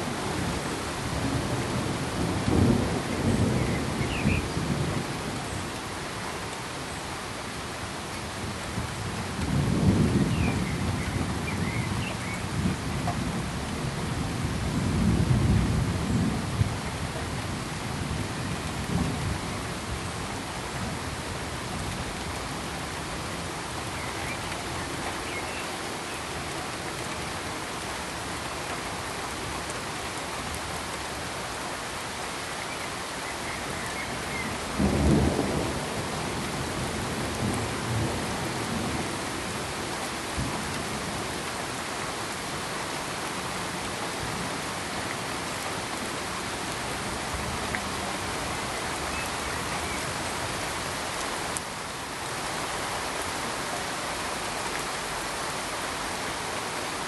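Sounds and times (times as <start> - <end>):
rain hissing: 0.0 - 57.0
low thunder rumbles: 8.4 - 20.0, 34.3 - 39.1.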